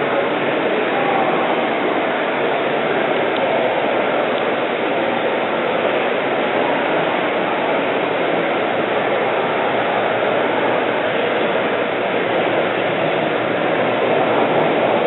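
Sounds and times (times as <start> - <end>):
airplane engine and propeller running: 6.0 - 15.0.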